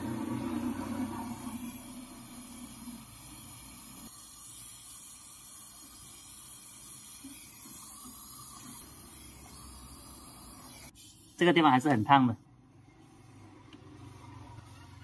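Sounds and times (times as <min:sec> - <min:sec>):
torch flame hissing: 0:00.0 - 0:11.6.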